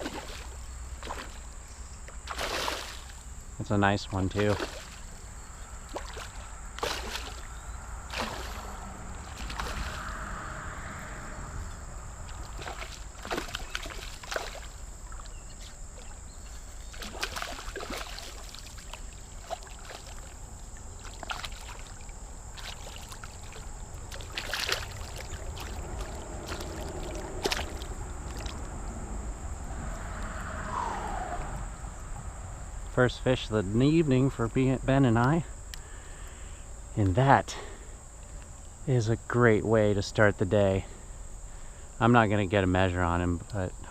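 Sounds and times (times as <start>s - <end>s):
river water sloshing and splashing: 0.0s - 3.3s, 4.4s - 10.4s, 12.2s - 28.8s.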